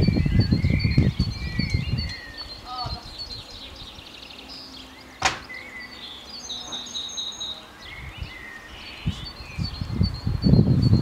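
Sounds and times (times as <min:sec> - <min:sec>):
small birds chirping: 0:00.0 - 0:11.0
sharp knock: 0:05.2 - 0:05.5.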